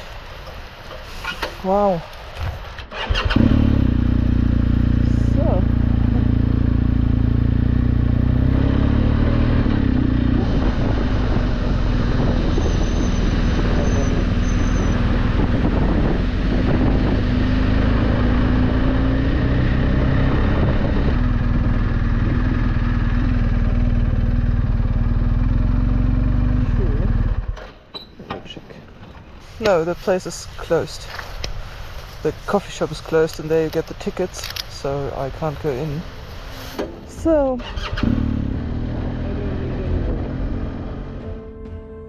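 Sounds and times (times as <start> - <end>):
motorcycle engine running: 3.2 - 27.6
wind noise on microphone: 9.3 - 23.7, 37.0 - 41.2.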